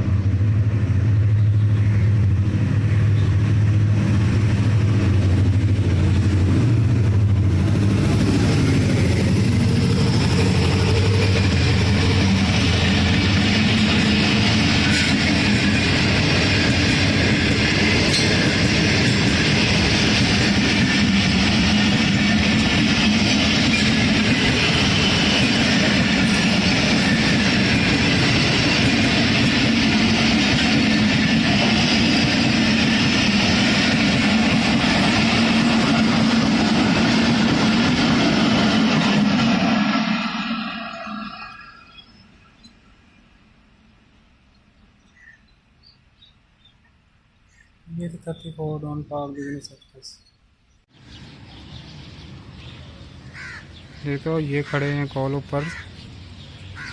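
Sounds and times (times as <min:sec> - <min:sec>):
train wheels rushing on rail: 0:00.0 - 0:43.2.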